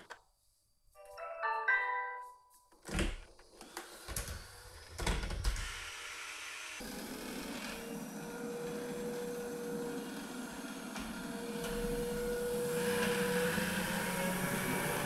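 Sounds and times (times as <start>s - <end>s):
vacuum cleaner motor running: 3.4s - 15.0s.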